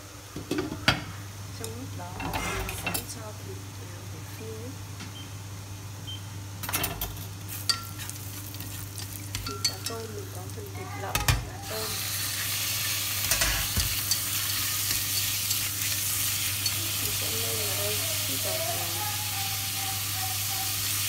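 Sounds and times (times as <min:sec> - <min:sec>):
utensils clicking against pot: 0:06.6 - 0:10.2, 0:13.2 - 0:17.3
food sizzling in a pot: 0:07.0 - 0:21.0.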